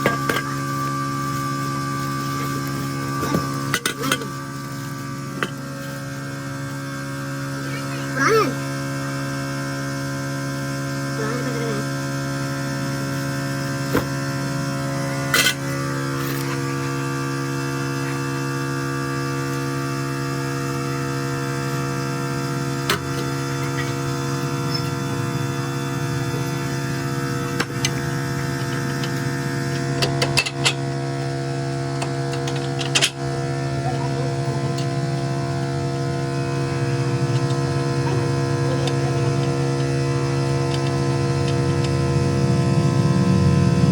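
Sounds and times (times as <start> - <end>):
electrical hum: 0.0 - 43.9.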